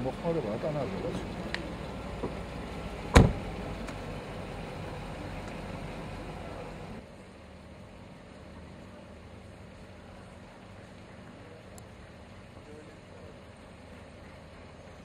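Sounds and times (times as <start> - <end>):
low street rumble: 0.0 - 15.0
car door shutting: 3.0 - 4.0.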